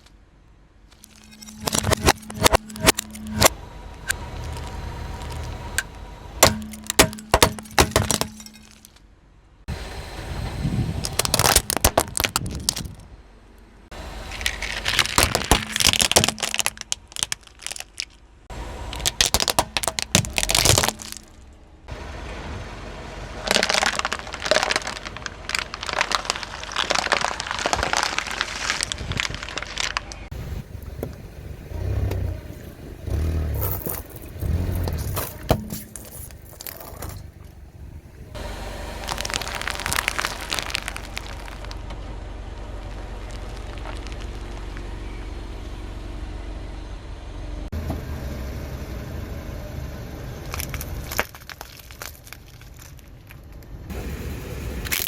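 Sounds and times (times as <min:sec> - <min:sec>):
car engine running low: 0:00.0 - 0:55.0
tyre crushing crunchy objects: 0:01.0 - 0:09.0, 0:11.0 - 0:13.0, 0:13.9 - 0:21.5, 0:23.4 - 0:41.9, 0:42.8 - 0:45.2, 0:50.4 - 0:53.7.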